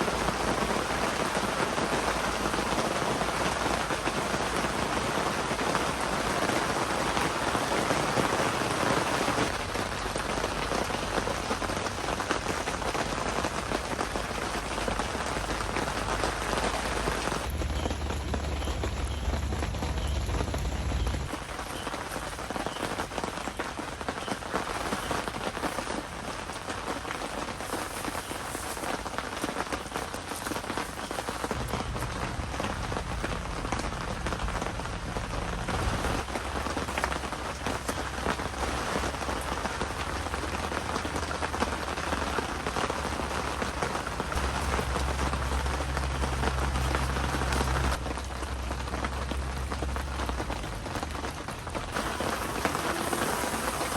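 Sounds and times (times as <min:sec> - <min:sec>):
heavy rain falling: 0:00.0 - 0:53.9
low rumble: 0:31.6 - 0:36.3.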